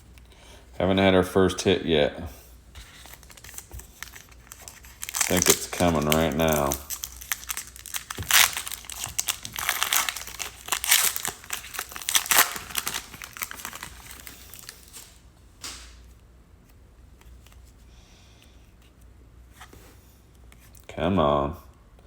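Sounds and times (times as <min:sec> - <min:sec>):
card pack wrappers tearing: 0:02.9 - 0:15.2.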